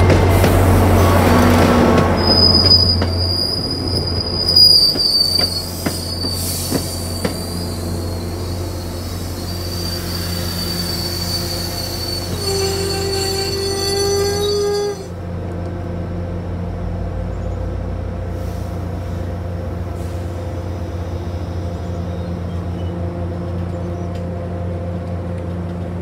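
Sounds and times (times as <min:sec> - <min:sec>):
train low rumble: 0:00.0 - 0:26.0
train wheels squealing: 0:02.2 - 0:15.1.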